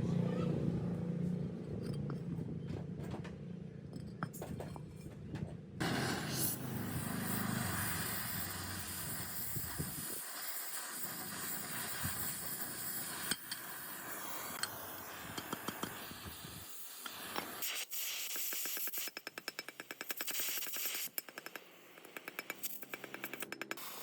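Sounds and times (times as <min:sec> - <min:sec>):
steady hiss: 0:05.8 - 0:23.2.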